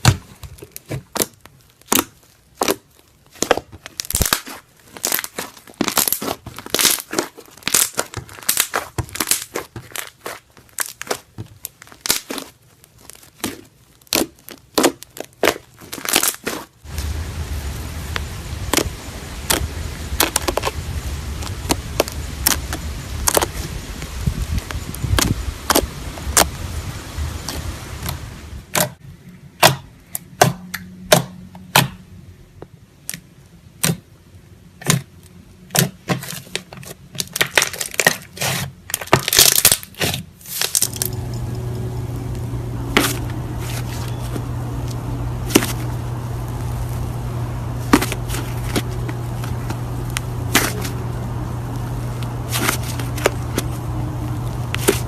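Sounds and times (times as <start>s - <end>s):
slime crackling pops: 0.0s - 17.1s, 18.1s - 23.7s.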